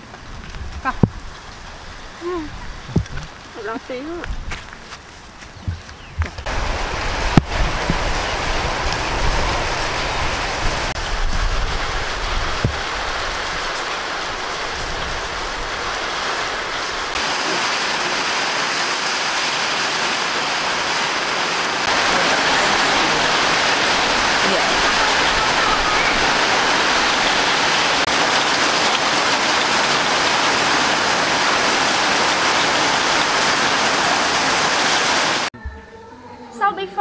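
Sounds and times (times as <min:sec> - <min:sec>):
low rumble: 0:06.4 - 0:13.4
heavy rain falling: 0:06.4 - 0:35.5.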